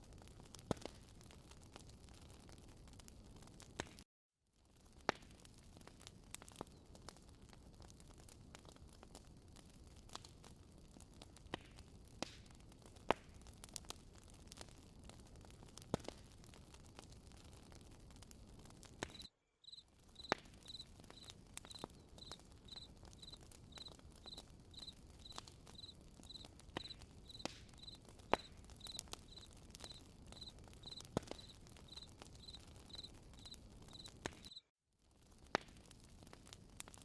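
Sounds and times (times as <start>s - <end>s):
campfire crackling and popping: 0.0s - 4.0s, 4.6s - 37.0s
cricket chirping: 19.2s - 28.0s, 28.8s - 34.6s.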